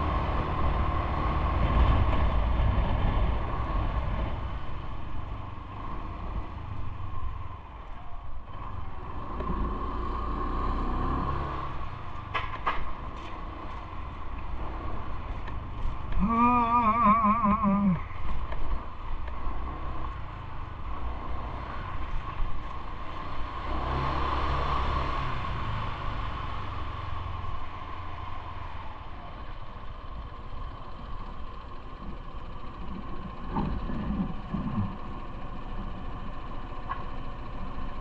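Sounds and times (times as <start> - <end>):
street traffic: 0.0 - 38.0
faint steady whine: 27.2 - 38.0.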